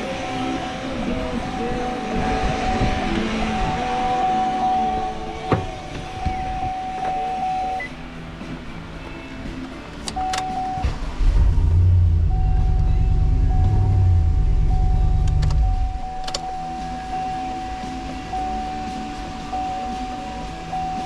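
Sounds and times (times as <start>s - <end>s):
electronic tone: 1.5s - 7.9s, 10.2s - 20.1s
engine revving and idling: 10.1s - 16.5s
sharp clicks: 15.1s - 16.4s.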